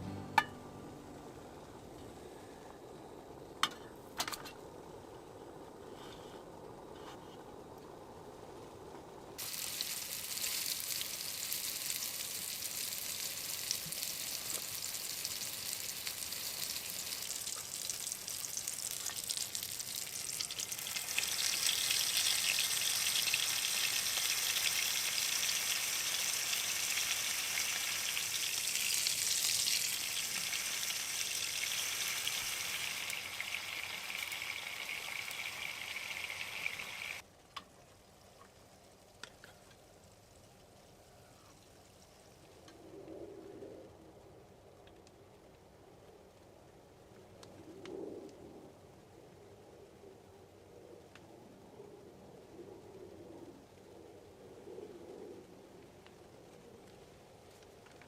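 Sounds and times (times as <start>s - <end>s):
food sizzling in a pan: 9.4s - 37.2s.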